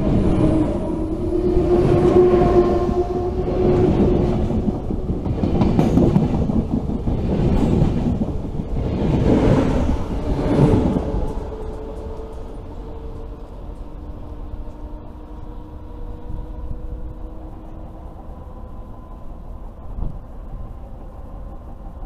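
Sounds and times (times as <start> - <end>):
train wheels clattering on rails: 0.0 - 16.2.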